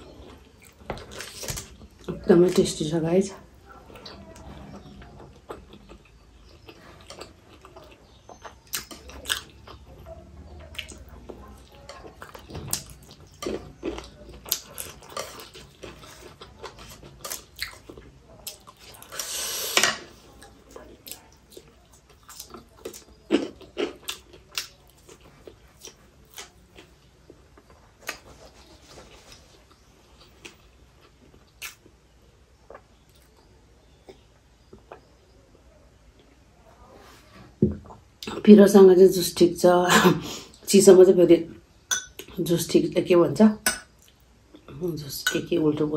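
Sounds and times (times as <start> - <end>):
chewing and biting: 4.9 - 19.2, 20.4 - 31.9.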